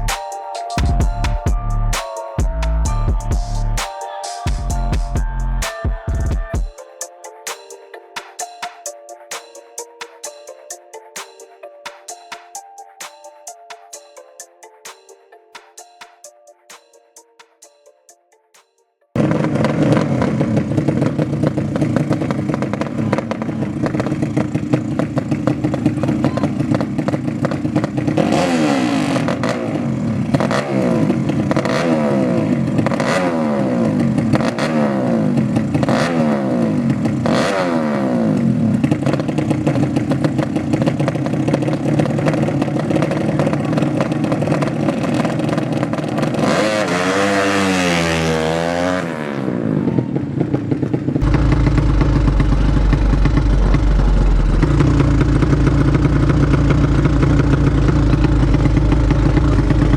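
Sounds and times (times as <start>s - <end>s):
motorcycle engine accelerating: 19.2s - 59.9s
motorcycle engine revving: 19.2s - 59.9s.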